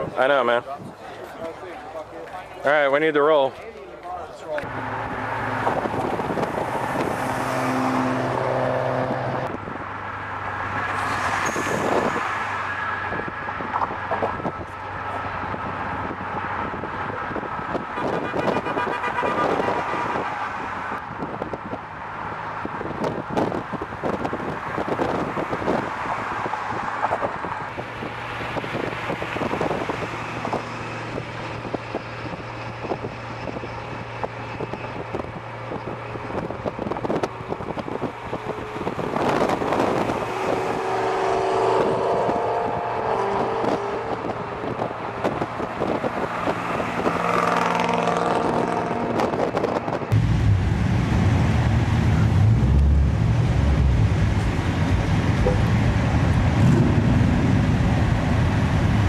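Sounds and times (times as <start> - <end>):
car engines running: 0.0 - 59.0
cars driving by: 0.0 - 59.0
wind on microphone: 5.6 - 9.9, 22.6 - 59.0
deep engine rumble: 50.0 - 59.0.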